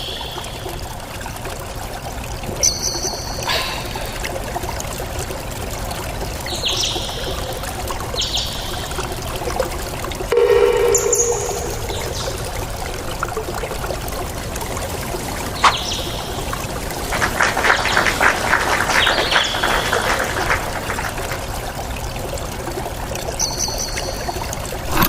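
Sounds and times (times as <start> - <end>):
water trickling and splashing: 0.0 - 25.0
high bird chirps: 10.4 - 12.6.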